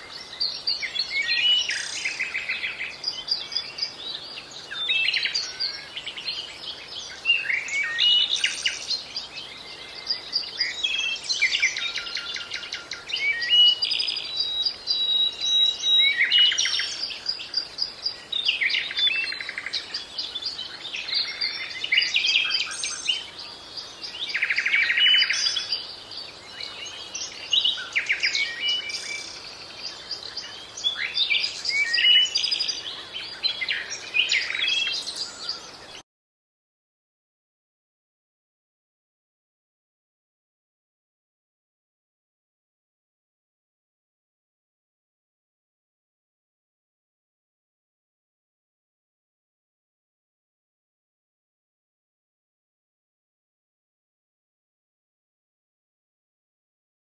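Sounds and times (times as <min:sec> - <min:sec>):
birds chirping and whistling: 0:00.0 - 0:36.0.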